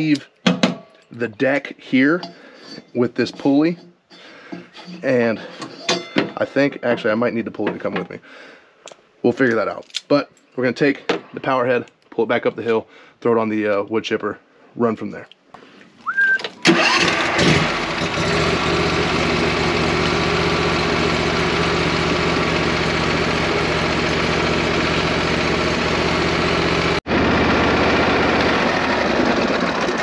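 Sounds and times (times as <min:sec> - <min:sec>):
engine starting and idling: 0:16.6 - 0:30.0.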